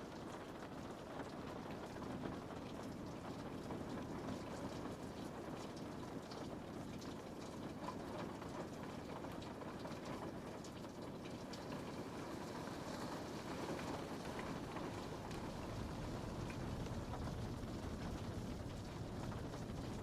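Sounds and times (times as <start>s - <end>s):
rain pattering on a window: 0.0s - 20.0s.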